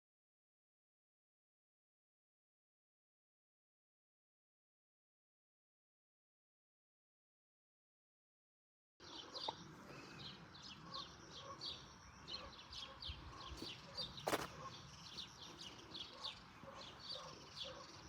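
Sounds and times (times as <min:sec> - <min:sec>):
small birds chirping: 0:09.0 - 0:18.0.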